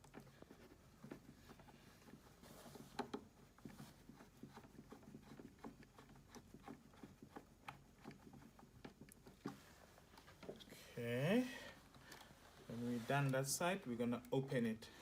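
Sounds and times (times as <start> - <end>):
screwdriver ticking on plastic: 3.0 - 9.6.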